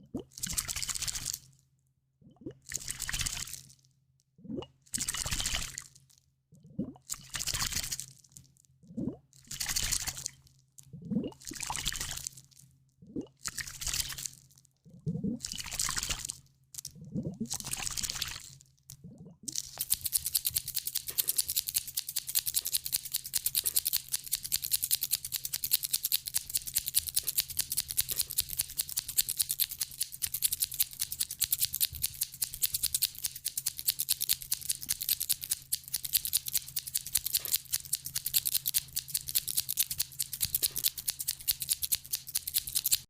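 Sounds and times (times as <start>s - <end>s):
fast crisp clicking ticks: 19.7s - 43.0s.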